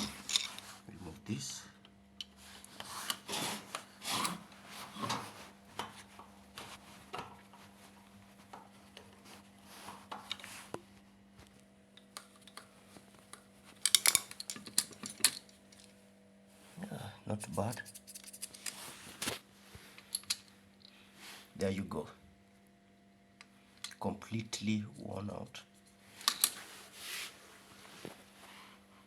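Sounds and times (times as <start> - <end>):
screwdriver scraping and clicking: 17.5 - 18.8.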